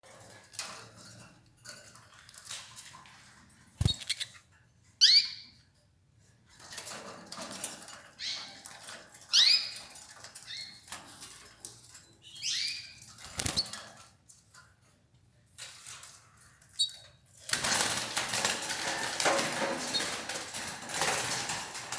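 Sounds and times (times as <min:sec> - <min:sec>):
rustling and clicking: 0:00.1 - 0:04.5, 0:13.1 - 0:14.7
wing flutters: 0:03.8 - 0:04.2, 0:13.2 - 0:13.8
canaries calling: 0:05.0 - 0:05.6, 0:08.1 - 0:10.9, 0:12.2 - 0:13.7.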